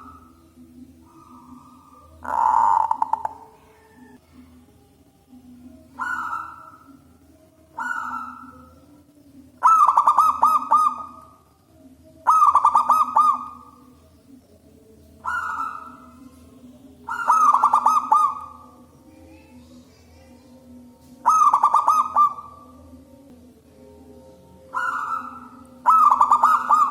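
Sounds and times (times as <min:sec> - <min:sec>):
dove cooing: 0:00.0 - 0:04.2, 0:05.8 - 0:11.4, 0:12.2 - 0:14.0, 0:15.2 - 0:19.6, 0:20.6 - 0:22.8, 0:24.5 - 0:26.9
faint low hum: 0:00.0 - 0:26.9.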